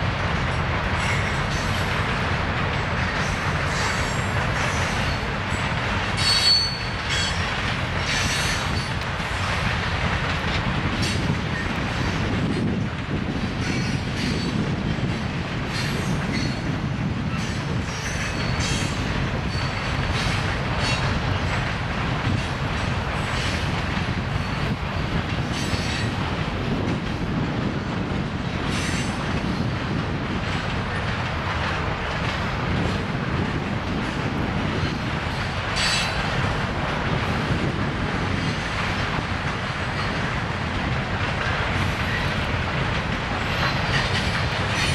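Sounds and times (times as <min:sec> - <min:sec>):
train wheels rumbling on track: 0:00.0 - 0:44.9
wheel squeals: 0:06.2 - 0:07.4.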